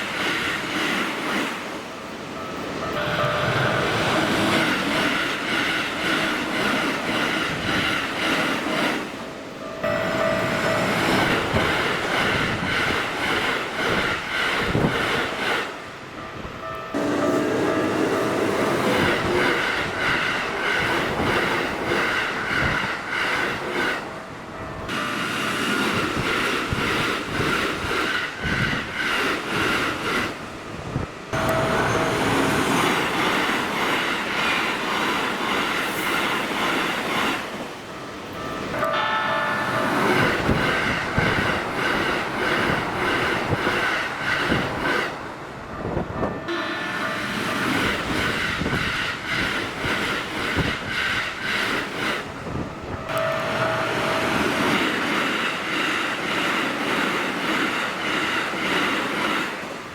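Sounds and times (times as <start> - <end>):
train wheels clattering on rails: 0.0 - 59.9
level crossing warning bell: 1.3 - 6.8, 8.7 - 28.6, 31.3 - 35.9, 37.8 - 50.7, 51.7 - 57.6.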